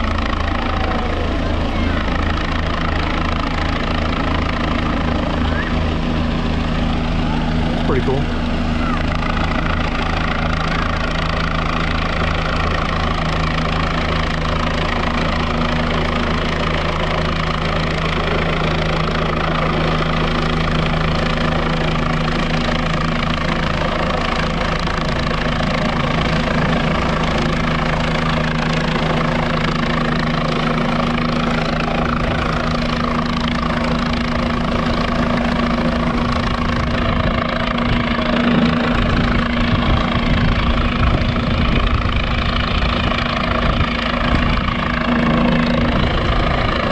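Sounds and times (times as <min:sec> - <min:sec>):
helicopter rotor and engine drone: 0:00.0 - 0:46.9
deep rumble: 0:31.6 - 0:46.9.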